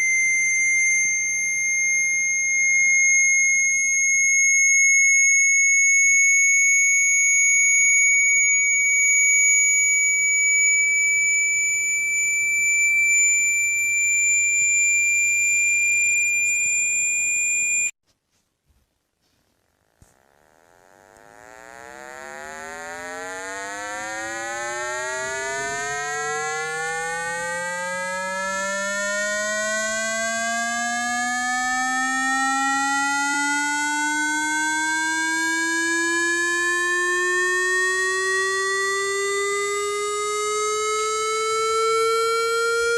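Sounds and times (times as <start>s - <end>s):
buzzy low tone rising: 0.0s - 4.8s, 19.9s - 28.4s
high-pitched electronic tone: 0.0s - 5.6s, 8.5s - 17.9s, 20.4s - 30.1s.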